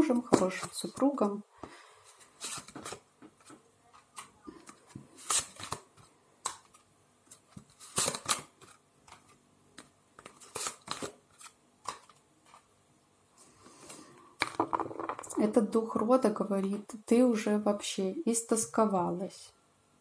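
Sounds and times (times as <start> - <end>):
cards snapping and swishing: 5.2 - 5.8, 7.8 - 8.6, 10.2 - 11.2.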